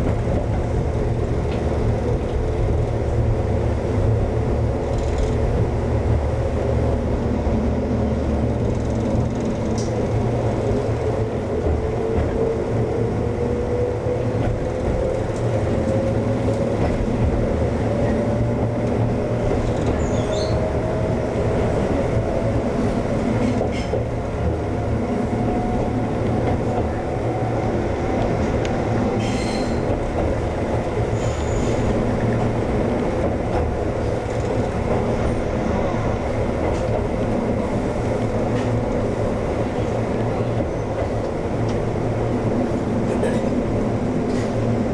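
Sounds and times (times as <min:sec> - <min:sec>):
train rumble and rail noise: 0:00.0 - 0:44.9
wheels clicking on track: 0:08.3 - 0:12.6.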